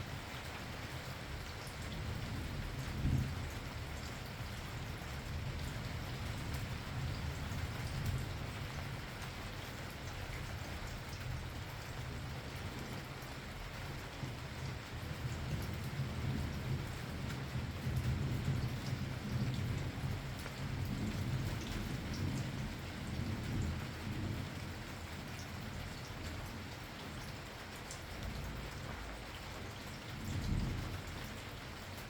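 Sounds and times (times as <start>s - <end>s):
steady rain falling: 0.0s - 32.0s
rolling thunder: 28.2s - 31.5s.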